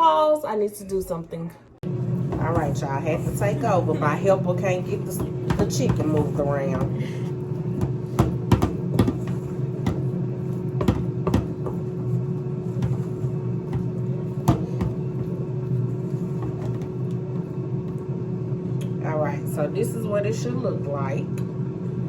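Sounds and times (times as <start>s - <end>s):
steady low hum: 1.6s - 22.0s
utensil knocking mixing bowl: 2.2s - 18.0s.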